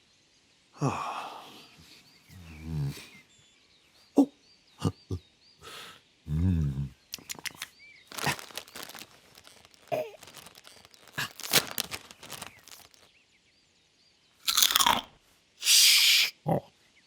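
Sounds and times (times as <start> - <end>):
crinkling rustling: 7.1 - 13.1.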